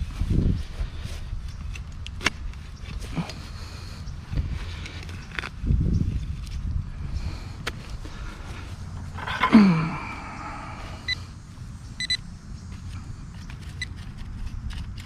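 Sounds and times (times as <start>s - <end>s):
metal detector beeps: 11.0s - 11.2s, 12.0s - 12.3s.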